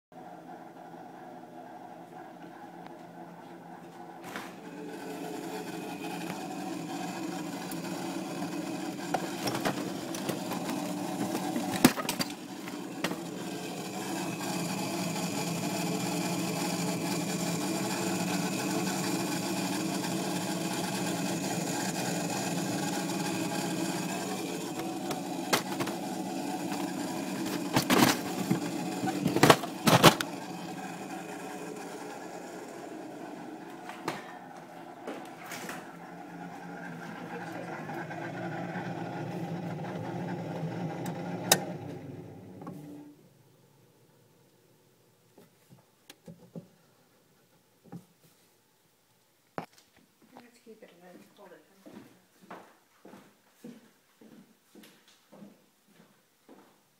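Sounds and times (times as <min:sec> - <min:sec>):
refrigerator humming: 0:00.1 - 0:44.2.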